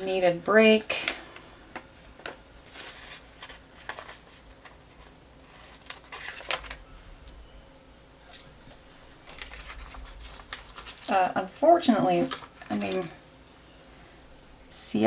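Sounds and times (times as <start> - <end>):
paper sheets rustling: 0.0 - 6.8, 8.2 - 13.2.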